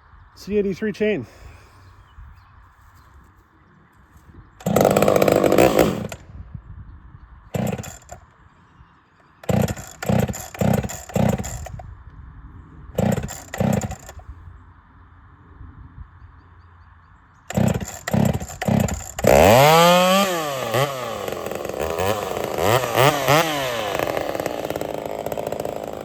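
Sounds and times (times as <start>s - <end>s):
chainsaw pull-starting and sputtering: 4.6s - 6.2s, 7.5s - 8.3s, 9.4s - 11.8s, 13.0s - 14.2s, 17.5s - 26.0s.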